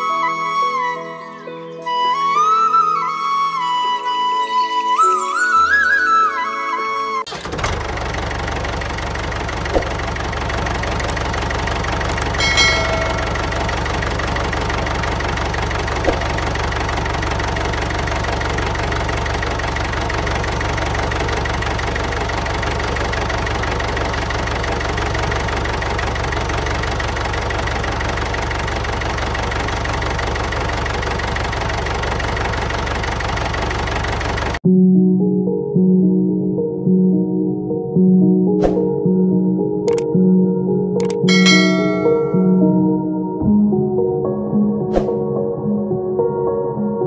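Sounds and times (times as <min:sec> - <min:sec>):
tractor engine idling: 0:07.3 - 0:34.6, 0:41.0 - 0:42.6
ringing tone: 0:12.2 - 0:14.4, 0:41.3 - 0:42.9.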